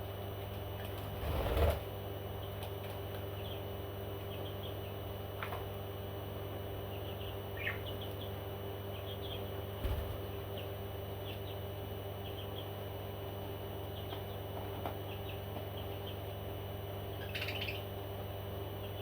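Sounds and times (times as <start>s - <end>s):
steady low hum: 0.0s - 19.0s
parrot chirping: 17.2s - 17.9s.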